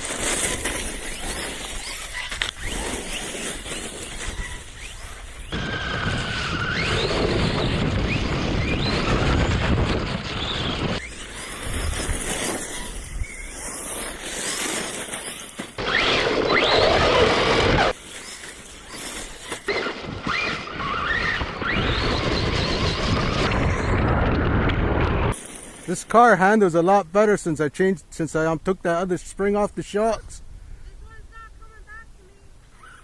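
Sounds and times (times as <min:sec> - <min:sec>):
tyres rumbling on pavement: 0:00.0 - 0:25.4
electric motors whining: 0:00.0 - 0:25.8.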